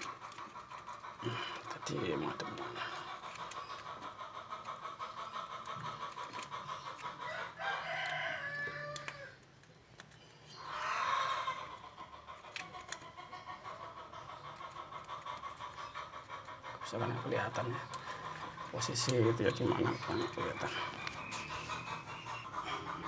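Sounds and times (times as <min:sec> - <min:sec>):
rooster crowing: 0:07.3 - 0:09.4.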